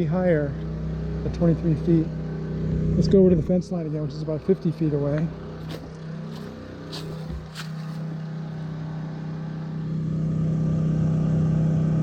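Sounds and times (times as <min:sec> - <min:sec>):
generator engine hum: 0:00.0 - 0:12.0.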